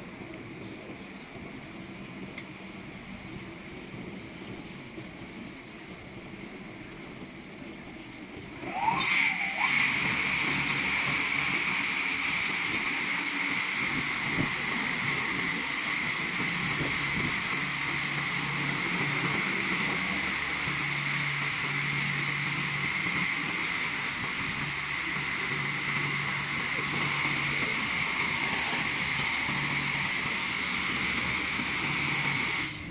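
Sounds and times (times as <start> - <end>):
pump hum: 0.0 - 32.9
high-pressure water jets hissing: 8.6 - 32.9.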